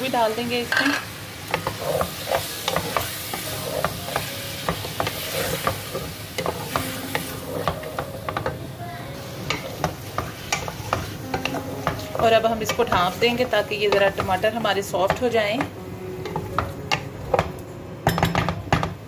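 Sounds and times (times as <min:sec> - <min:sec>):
food sizzling in hot oil: 0:00.0 - 0:17.5
spatula scraping metal pot: 0:00.7 - 0:04.3, 0:04.9 - 0:08.6.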